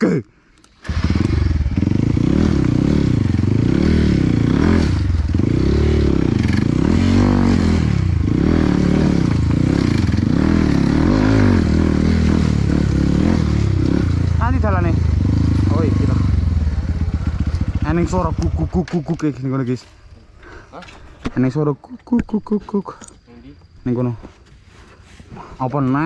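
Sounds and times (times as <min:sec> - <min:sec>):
motorcycle engine revving: 0:00.8 - 0:19.2
motorcycle rattling: 0:00.8 - 0:19.5.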